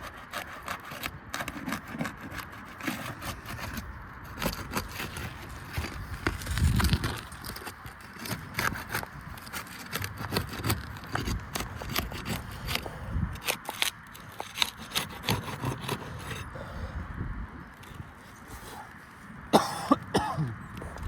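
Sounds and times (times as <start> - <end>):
hand tools scraping roof shingles: 0.0 - 16.7.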